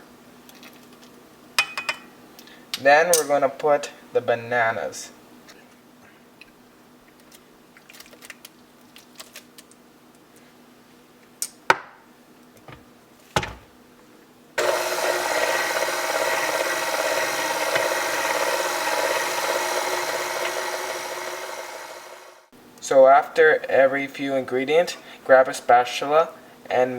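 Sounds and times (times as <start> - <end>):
electric mixer running: 14.6 - 22.5.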